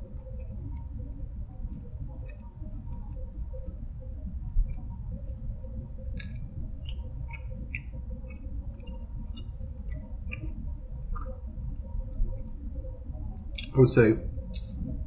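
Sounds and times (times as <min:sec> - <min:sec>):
steady low hum: 0:00.0 - 0:15.0
mouth clicks while chewing: 0:01.7 - 0:03.1, 0:06.1 - 0:12.5, 0:14.5 - 0:14.9.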